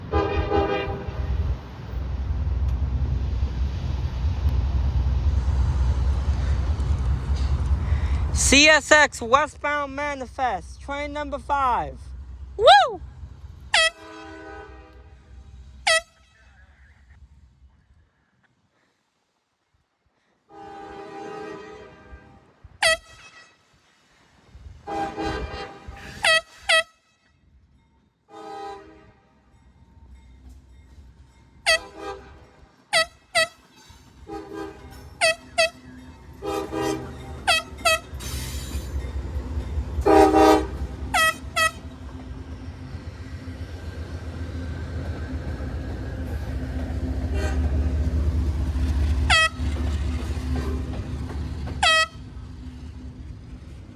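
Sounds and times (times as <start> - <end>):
locomotive air horn blasts: 0.0 - 1.4, 13.7 - 16.6, 20.5 - 23.6, 24.8 - 27.2, 28.3 - 29.4, 31.6 - 33.6, 34.2 - 38.6, 40.0 - 42.0, 47.2 - 47.9, 49.2 - 49.8, 51.8 - 52.2
train rumble: 0.0 - 18.4, 20.5 - 53.9.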